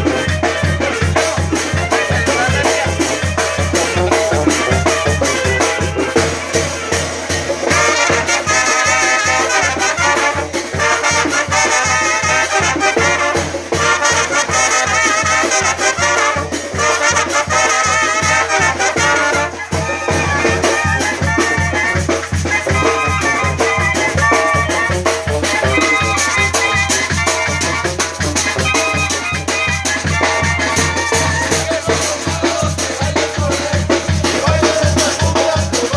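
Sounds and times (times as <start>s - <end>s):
bass and drum beat: 0.0s - 35.9s
brass band playing: 0.0s - 35.9s
rattling percussion: 0.0s - 35.9s.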